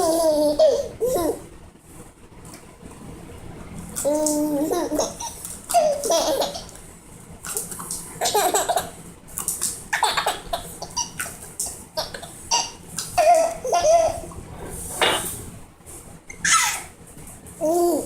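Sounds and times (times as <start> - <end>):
child laughing: 0.0 - 1.5, 4.1 - 6.8, 8.2 - 9.0, 12.0 - 14.3.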